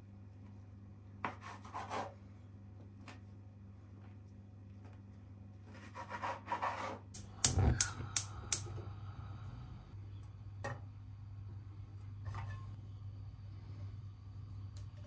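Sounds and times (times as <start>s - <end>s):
steady low hum: 7.2s - 15.0s.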